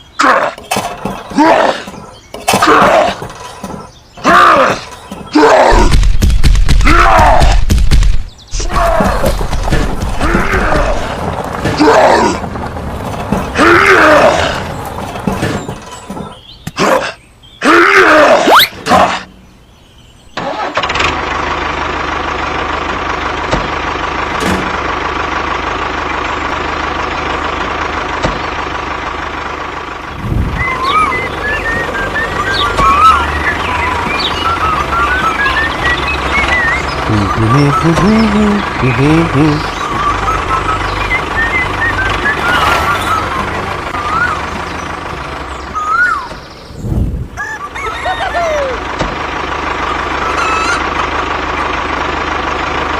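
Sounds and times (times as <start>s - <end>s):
engine starting and idling: 20.3s - 46.8s, 47.4s - 52.9s
high warbling chirps: 30.2s - 38.0s.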